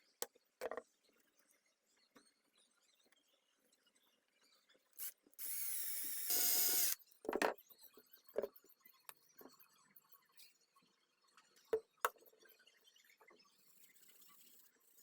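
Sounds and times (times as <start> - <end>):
small power tool running: 5.0 - 7.0.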